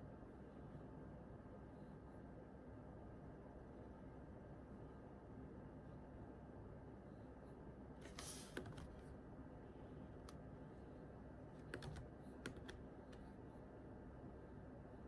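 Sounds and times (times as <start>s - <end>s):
faint room hum: 0.0s - 15.0s
computer keyboard keystrokes: 8.1s - 9.0s, 11.6s - 13.3s.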